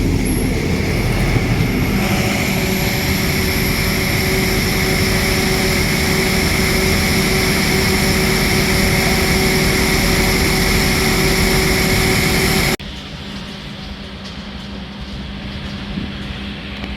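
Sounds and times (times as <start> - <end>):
whining tones: 0.0 - 12.8
passenger train running: 0.0 - 16.9.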